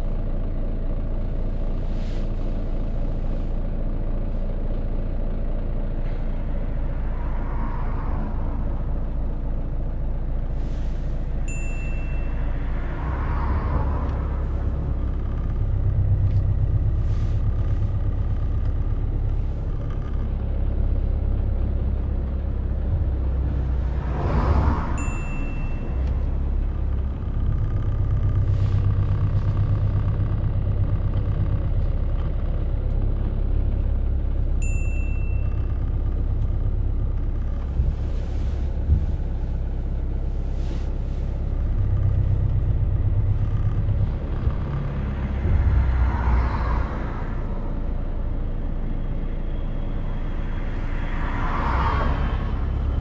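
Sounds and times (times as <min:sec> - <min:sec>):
car engine low rumble: 0:00.0 - 0:53.0.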